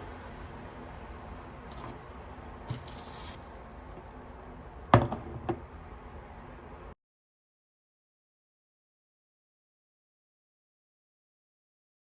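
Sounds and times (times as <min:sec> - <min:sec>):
object set down with clack: 0:01.7 - 0:02.0, 0:05.0 - 0:05.7
kitchen handling sounds: 0:01.7 - 0:02.1, 0:02.7 - 0:04.3, 0:04.9 - 0:05.8.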